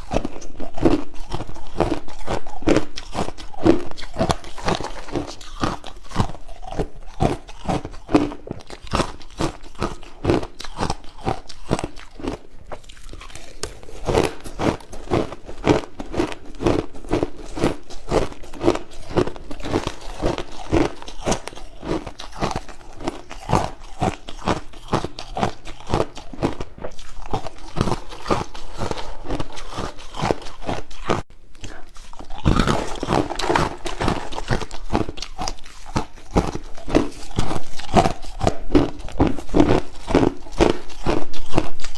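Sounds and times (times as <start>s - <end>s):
crushed ice crunching: 32.4s - 41.7s.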